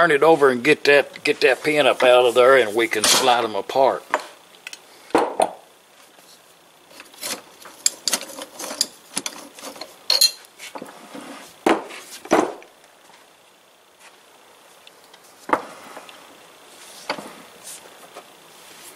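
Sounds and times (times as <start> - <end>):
metal parts clinking and scraping: 6.9 - 10.5.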